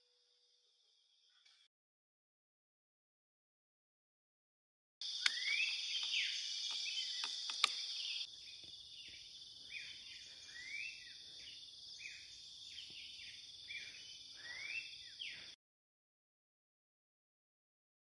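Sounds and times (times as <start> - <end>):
insects droning: 5.0 - 15.6
bird calls sweeping up: 5.1 - 8.3
sharp clicks: 5.2 - 8.0.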